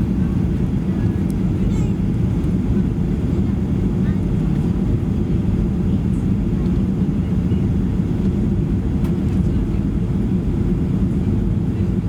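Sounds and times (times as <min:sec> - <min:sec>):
aircraft cabin rumble: 0:00.0 - 0:12.0.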